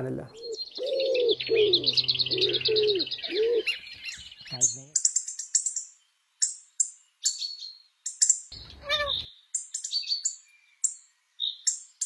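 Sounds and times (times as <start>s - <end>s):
small birds chirping: 0.0s - 12.0s
wavering bird call: 0.3s - 5.0s, 8.7s - 9.3s.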